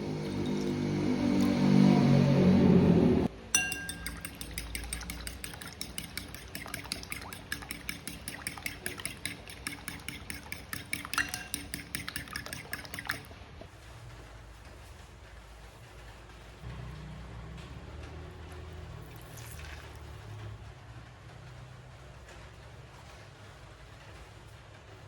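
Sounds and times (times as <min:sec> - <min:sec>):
utensil clinking against cookware: 0:03.5 - 0:13.3.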